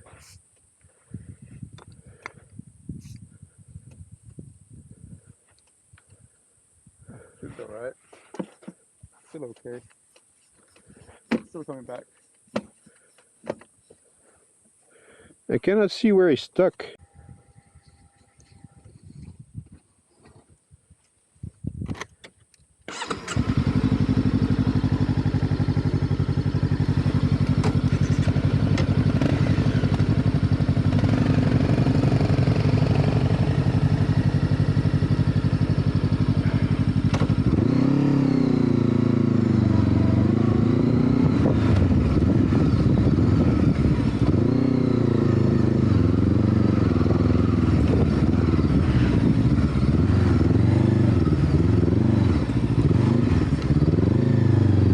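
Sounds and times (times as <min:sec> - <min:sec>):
motorcycle engine idling and revving: 0:22.9 - 0:54.9
motorcycle engine starting: 0:22.9 - 0:54.9.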